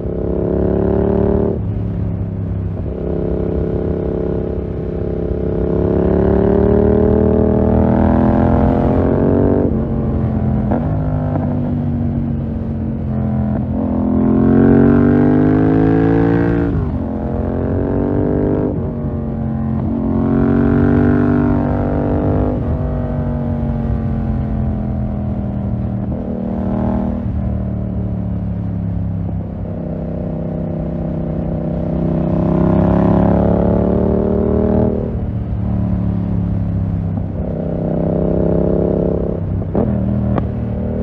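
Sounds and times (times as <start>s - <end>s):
motorcycle engine accelerating: 0.0s - 41.0s.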